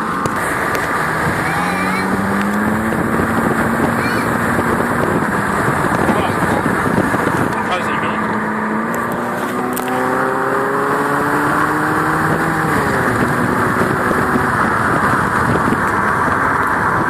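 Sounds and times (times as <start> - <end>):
car engine exhaust: 0.0 - 17.0
steady rushing noise: 0.0 - 17.0.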